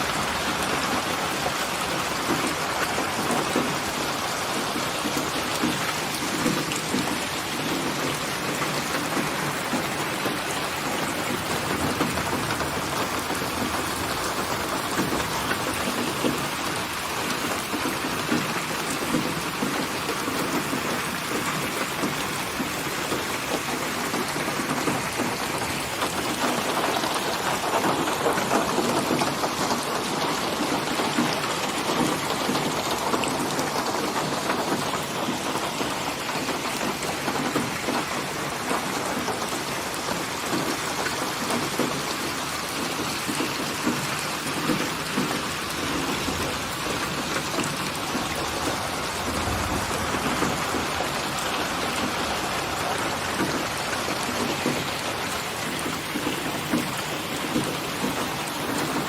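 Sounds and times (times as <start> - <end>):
steady rain falling: 0.0 - 59.0
low rumble of thunder: 48.4 - 53.5.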